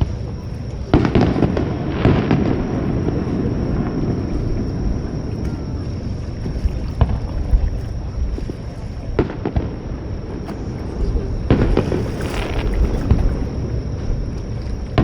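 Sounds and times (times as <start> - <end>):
crackling hiss: 0.0 - 15.0
low rumble: 0.0 - 15.0
fireworks bangs: 0.9 - 5.1, 9.1 - 13.6.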